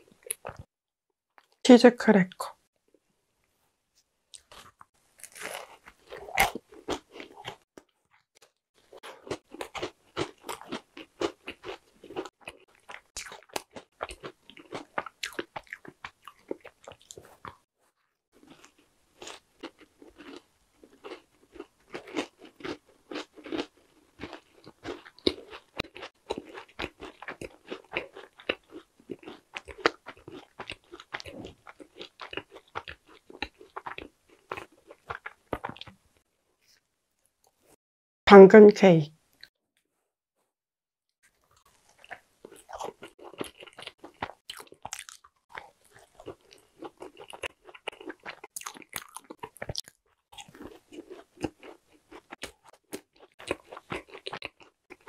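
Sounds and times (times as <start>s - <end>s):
crisp crunching bites: 4.4s - 7.6s.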